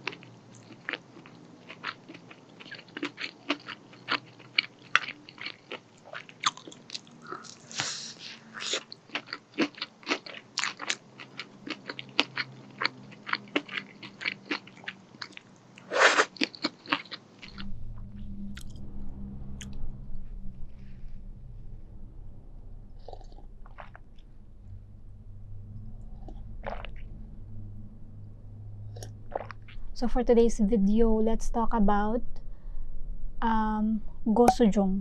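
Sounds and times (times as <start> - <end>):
crunchy chewing: 0.0 - 17.6
low hum: 17.3 - 35.0.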